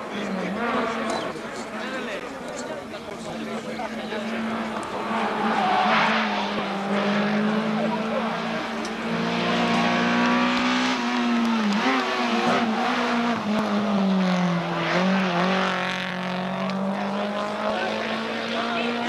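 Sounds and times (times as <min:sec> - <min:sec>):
car engine revving high: 0:04.0 - 0:19.0.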